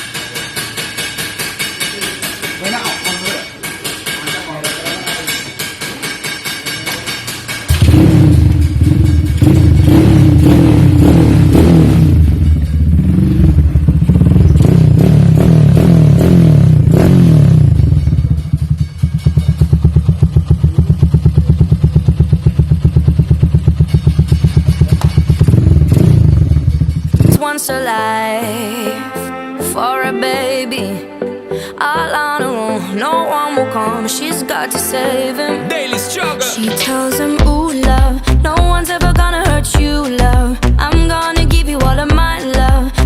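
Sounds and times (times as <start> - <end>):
loud motorcycle exhaust rumble: 7.7 - 27.4.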